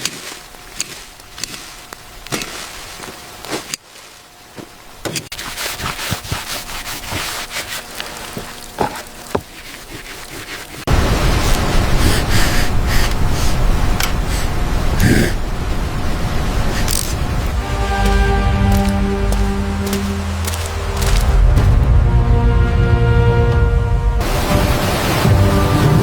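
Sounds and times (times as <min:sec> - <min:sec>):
scraping: 0:00.0 - 0:10.9
loud steady rushing noise: 0:10.8 - 0:26.0.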